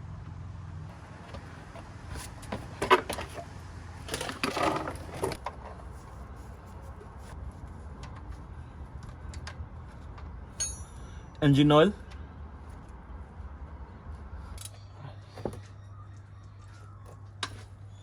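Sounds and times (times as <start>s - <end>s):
hand tools clicking and knocking: 1.2s - 5.8s
tools clattering: 1.2s - 6.1s, 10.0s - 11.4s.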